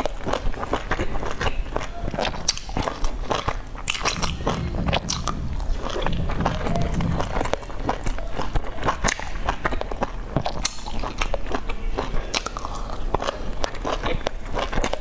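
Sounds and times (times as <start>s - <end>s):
chewing soft dumplings: 0.0s - 15.0s.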